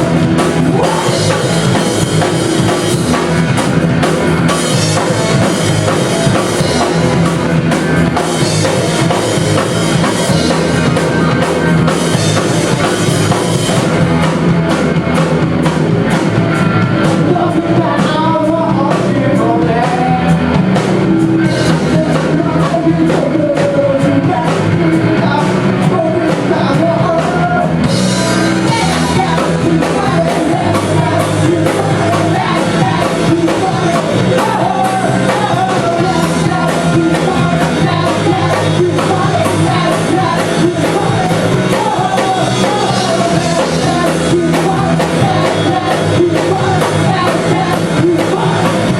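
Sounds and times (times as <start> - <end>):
person singing: 0.0 - 3.4, 16.9 - 48.9
rock band playing live: 0.0 - 48.9.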